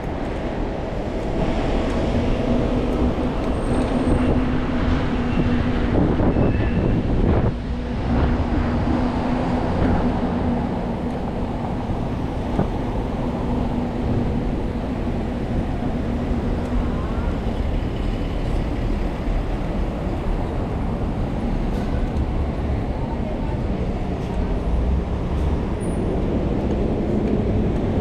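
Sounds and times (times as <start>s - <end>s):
city traffic rumble: 0.0s - 28.0s
vehicle engine hum: 0.0s - 28.0s.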